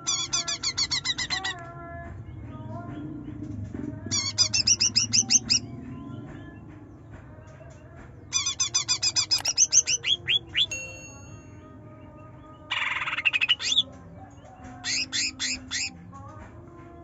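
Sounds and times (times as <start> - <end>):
bird singing rapid trills: 0.0 - 1.6, 4.0 - 6.7, 8.2 - 16.1.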